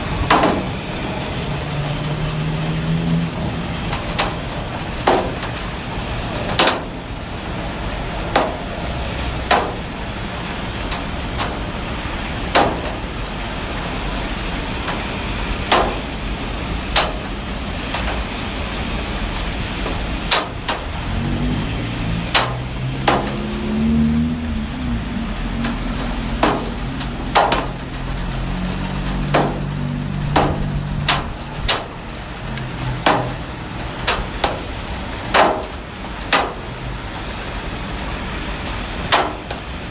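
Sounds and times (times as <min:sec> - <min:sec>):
heavy rain falling: 0:00.0 - 0:39.9
low engine hum: 0:00.0 - 0:39.9
sharp knocks: 0:00.2 - 0:00.8, 0:08.3 - 0:08.8, 0:12.5 - 0:13.0, 0:15.7 - 0:16.1, 0:19.8 - 0:20.9, 0:22.3 - 0:24.0, 0:25.6 - 0:28.0, 0:29.1 - 0:32.0, 0:32.8 - 0:33.5, 0:34.1 - 0:34.7, 0:35.3 - 0:36.7, 0:39.1 - 0:39.6.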